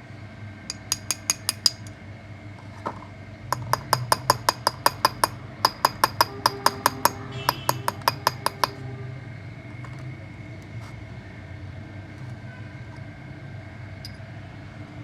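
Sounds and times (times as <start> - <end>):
steady low hum: 0.0 - 12.2
ringing metal taps: 3.6 - 8.8.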